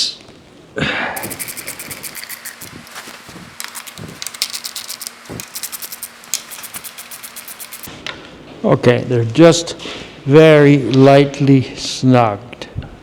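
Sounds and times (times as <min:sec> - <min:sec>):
ratchet wrench clicking: 0:01.2 - 0:07.9.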